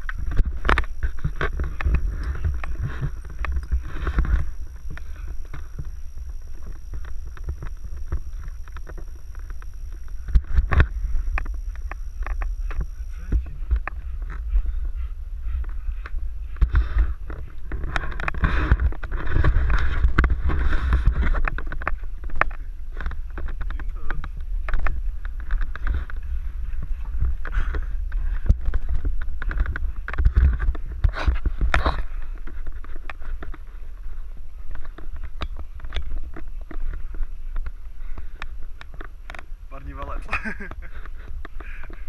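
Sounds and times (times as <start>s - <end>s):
wind rumble on microphone: 0.0s - 42.0s.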